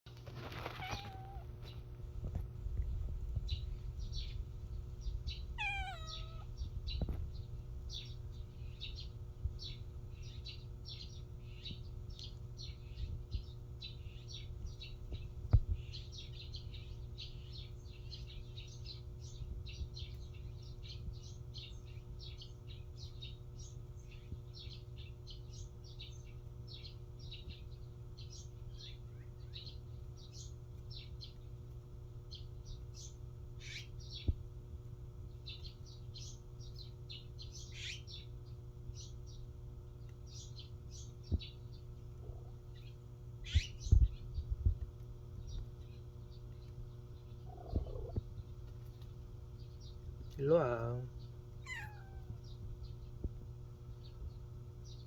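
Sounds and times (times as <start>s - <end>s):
steady low hum: 0.1s - 55.0s
cat meowing: 0.6s - 1.6s, 5.6s - 6.6s, 51.6s - 52.5s.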